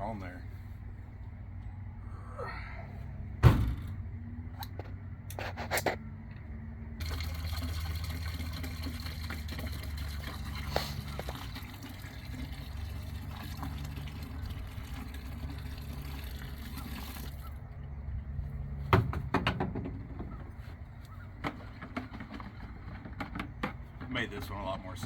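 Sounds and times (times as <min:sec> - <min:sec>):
thump: 0:03.4 - 0:04.0, 0:18.9 - 0:20.0
liquid pouring and splashing: 0:07.0 - 0:17.5.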